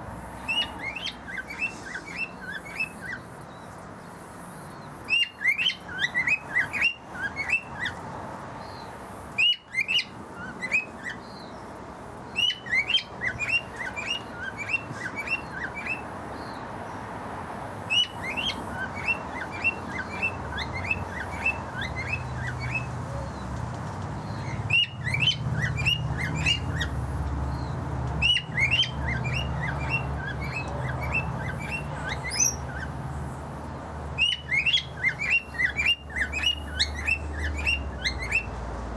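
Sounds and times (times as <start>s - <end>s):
cockatiel chirping: 24.7s - 27.0s, 28.2s - 32.9s, 34.2s - 38.5s.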